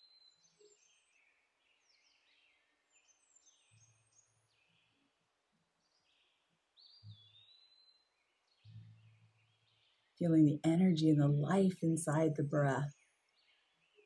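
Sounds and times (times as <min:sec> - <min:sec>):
faint birdsong chirps: 0:00.0 - 0:14.0.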